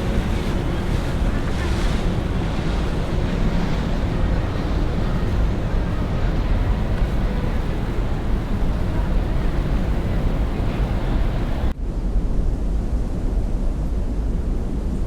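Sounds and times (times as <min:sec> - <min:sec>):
boat engine running: 0:00.0 - 0:11.7
wind buffeting microphone: 0:00.0 - 0:15.0.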